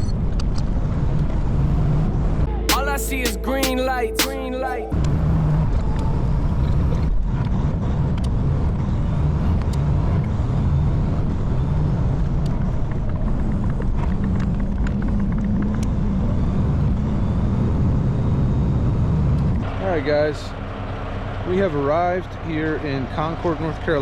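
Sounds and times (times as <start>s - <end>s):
road noise: 0.1s - 24.0s
truck diesel engine: 19.6s - 24.0s.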